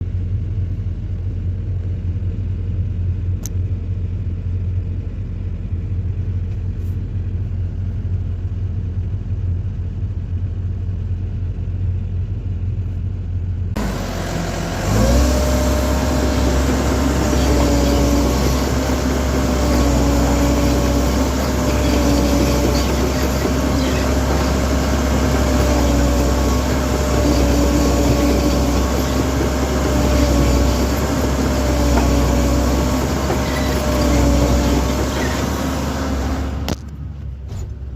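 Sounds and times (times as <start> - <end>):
excavator engine rumbling: 0.0 - 37.9
steady whine: 13.6 - 37.3.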